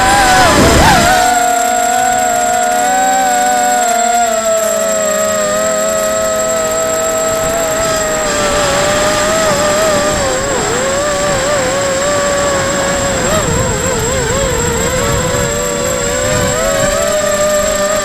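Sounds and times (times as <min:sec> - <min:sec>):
strong wind: 0:00.0 - 0:01.4, 0:07.2 - 0:18.0
drone motors whining: 0:00.0 - 0:18.0.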